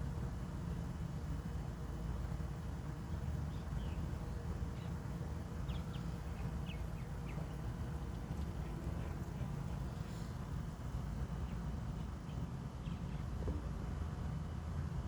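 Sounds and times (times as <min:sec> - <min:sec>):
faint bird chirps: 0:03.5 - 0:10.3.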